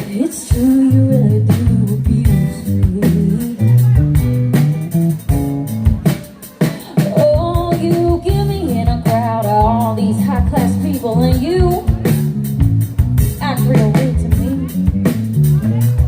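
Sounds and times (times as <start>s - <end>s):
person singing: 0.0s - 4.0s, 6.3s - 10.1s
small band playing live: 0.0s - 16.0s.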